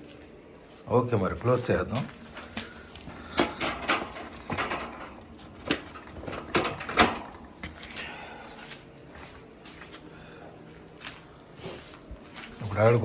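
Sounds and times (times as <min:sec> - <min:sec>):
gate knocking and clattering: 0:02.3 - 0:07.7.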